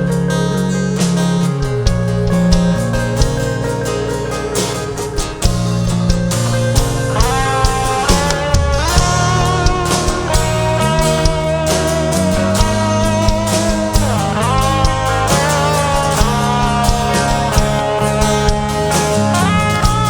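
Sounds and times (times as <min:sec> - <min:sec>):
bass guitar: 0:00.0 - 0:20.0
lead guitar with pitch bends: 0:00.0 - 0:20.0
steady drum beat: 0:00.0 - 0:20.0.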